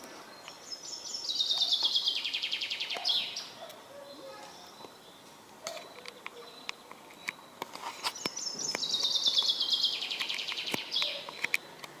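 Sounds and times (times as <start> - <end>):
songbird trilling: 0.6 - 3.6, 8.1 - 11.5.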